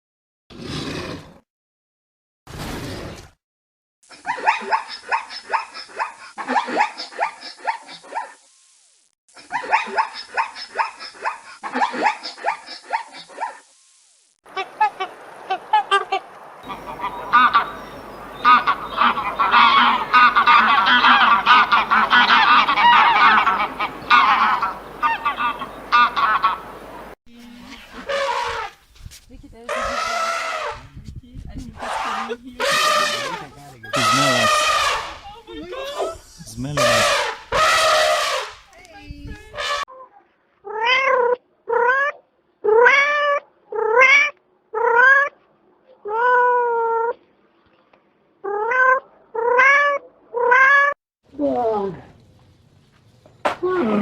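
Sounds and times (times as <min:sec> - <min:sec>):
flock of birds calling: 0:14.5 - 0:27.2, 0:31.8 - 0:38.6
cat meowing: 0:42.7 - 0:45.3, 0:48.5 - 0:51.0.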